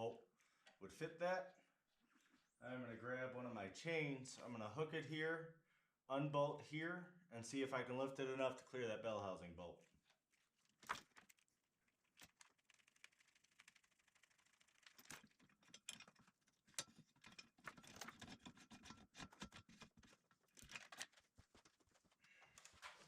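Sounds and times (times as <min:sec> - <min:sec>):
chain and tools clicking and rattling: 0:12.2 - 0:21.2.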